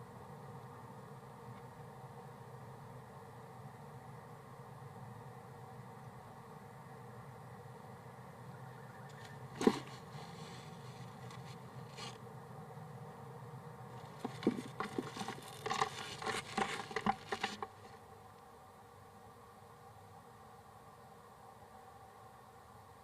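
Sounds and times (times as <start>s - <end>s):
scratching inside wooden nest box: 9.1s - 12.2s, 14.0s - 18.0s.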